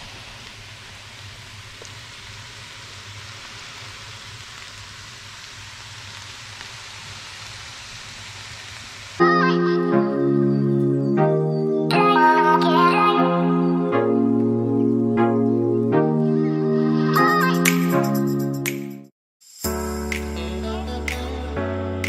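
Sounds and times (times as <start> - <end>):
food sizzling in a frying pan: 0.0 - 9.2
music: 9.2 - 22.0.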